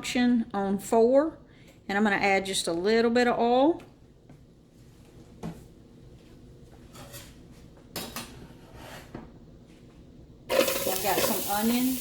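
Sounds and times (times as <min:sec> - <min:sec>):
utensils clinking against pot: 0:10.5 - 0:12.0.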